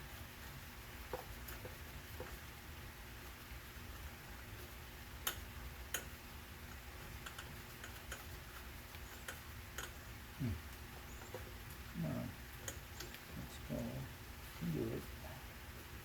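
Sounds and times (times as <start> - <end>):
low steady hum: 0.0 - 16.0
small parts clicking and tapping: 5.2 - 10.0
voice murmuring: 10.4 - 10.7, 11.9 - 12.4.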